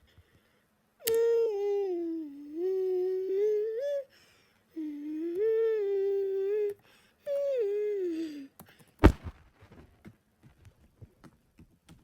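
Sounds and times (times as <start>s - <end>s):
person humming wavering note: 1.0s - 4.1s, 4.7s - 8.6s.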